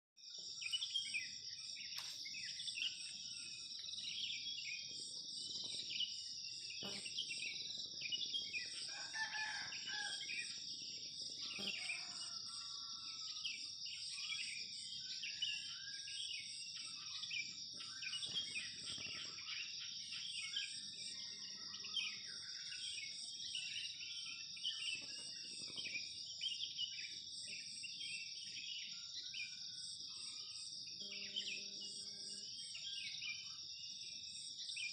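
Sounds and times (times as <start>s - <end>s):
rooster crowing: 8.9s - 10.4s, 11.6s - 13.4s.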